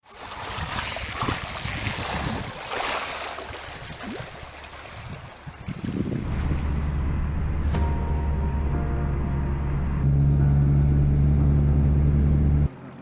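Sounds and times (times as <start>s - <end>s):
water lapping against kayak: 0.0s - 7.1s
wind noise: 0.4s - 2.7s, 3.7s - 7.9s
music: 7.0s - 12.7s.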